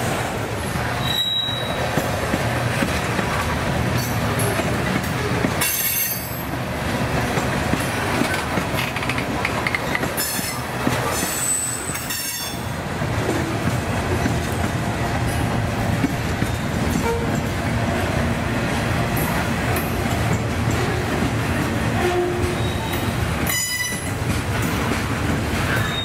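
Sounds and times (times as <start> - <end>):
train wheels rumbling on rail: 0.0 - 26.0
high-pitched wheel squeals: 1.0 - 1.8, 11.2 - 12.6, 25.7 - 26.0.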